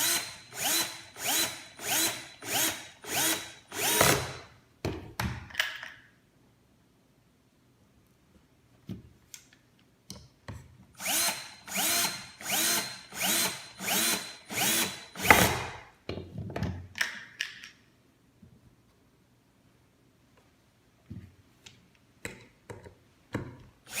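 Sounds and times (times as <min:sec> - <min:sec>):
electric drill driving a screw: 0:00.0 - 0:04.5, 0:11.0 - 0:15.8.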